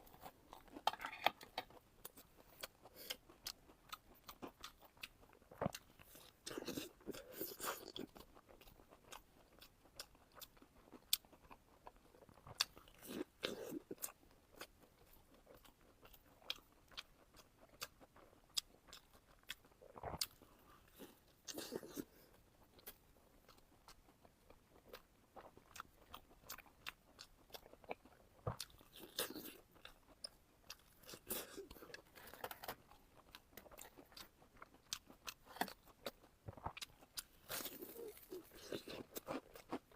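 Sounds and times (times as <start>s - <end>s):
wet chewing: 0.0s - 39.9s.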